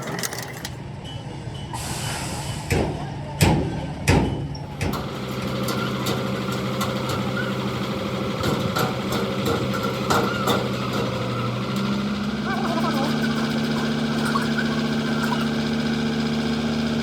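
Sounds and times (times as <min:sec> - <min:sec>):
engine idling: 0:04.7 - 0:17.0.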